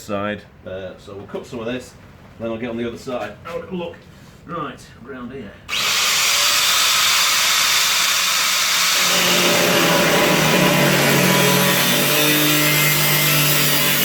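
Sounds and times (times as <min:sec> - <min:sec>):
power tool cutting sheet steel: 0:05.7 - 0:14.0.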